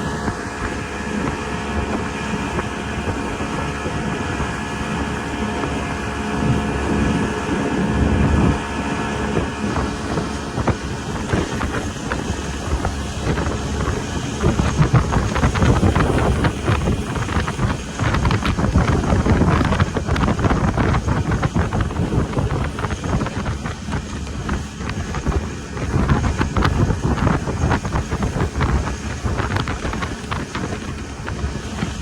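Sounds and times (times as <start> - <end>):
speedboat engine running: 0.0 - 32.0
wind buffeting microphone: 0.0 - 32.0.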